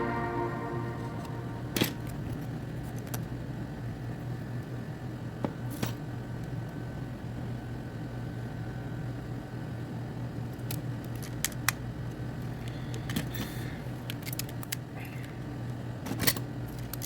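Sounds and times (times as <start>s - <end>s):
steady low hum: 0.0s - 2.8s.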